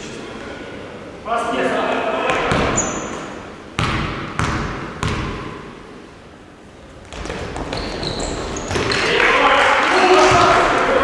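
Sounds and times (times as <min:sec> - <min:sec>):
court noise: 0:02.1 - 0:06.1, 0:06.9 - 0:11.0
basketball bouncing on gym floor: 0:02.3 - 0:03.2, 0:03.8 - 0:05.7, 0:07.1 - 0:09.1
short high shoe squeaks: 0:02.7 - 0:03.3, 0:07.7 - 0:09.0.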